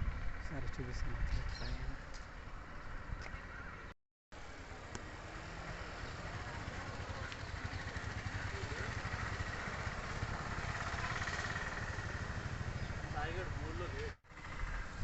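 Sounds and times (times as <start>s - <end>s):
small motorcycle engine running: 4.5s - 15.0s.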